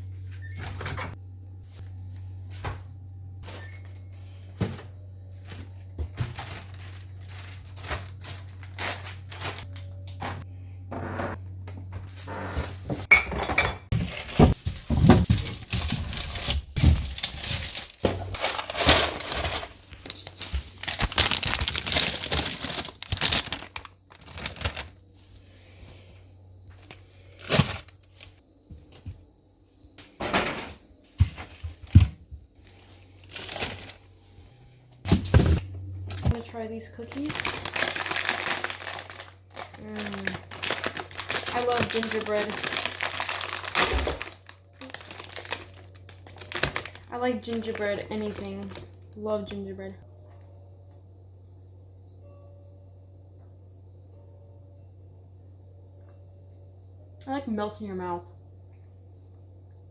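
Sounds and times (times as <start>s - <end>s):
low steady hum: 0.0s - 59.9s
plastic bags crinkling: 5.3s - 10.1s, 13.9s - 25.1s, 26.7s - 28.4s, 31.4s - 34.4s, 35.1s - 49.5s.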